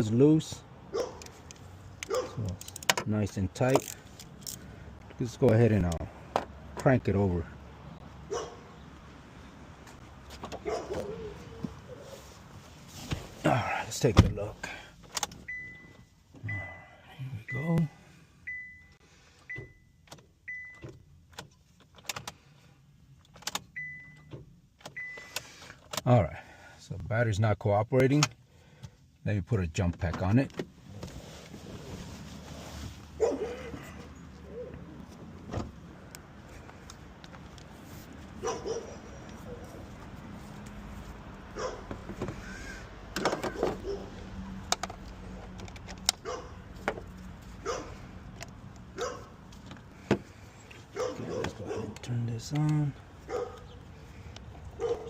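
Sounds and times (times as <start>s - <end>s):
dashboard warning chime beeping: 15.4s - 21.0s, 23.7s - 25.4s.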